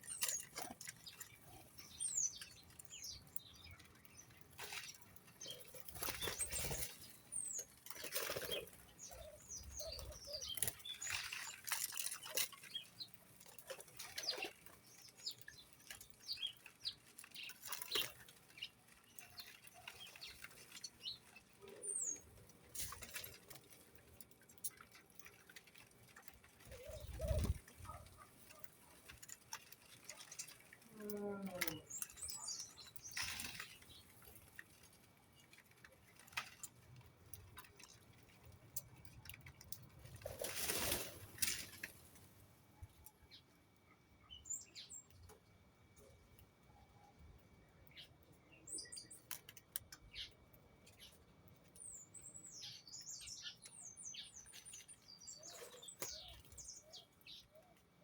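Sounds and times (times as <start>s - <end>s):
birds flapping wings: 4.5s - 12.6s, 40.0s - 42.3s.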